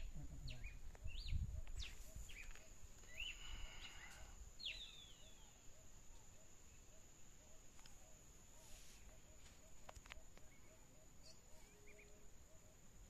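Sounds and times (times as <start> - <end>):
birds chirping and whistling: 0.0 - 5.6, 9.0 - 12.2.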